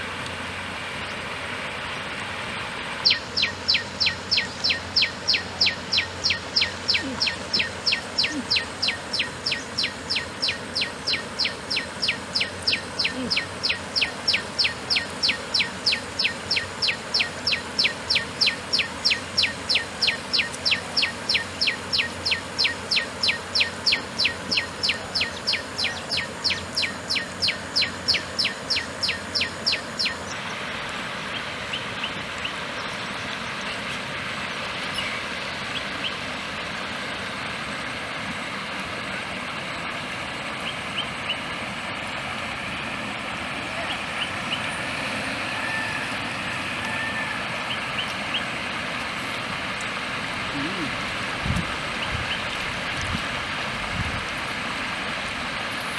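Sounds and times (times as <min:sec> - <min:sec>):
bird chirping: 0:03.0 - 0:30.3.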